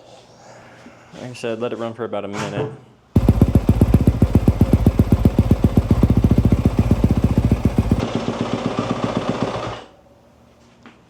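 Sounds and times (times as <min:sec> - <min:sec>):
motorcycle engine running: 0:03.2 - 0:09.5.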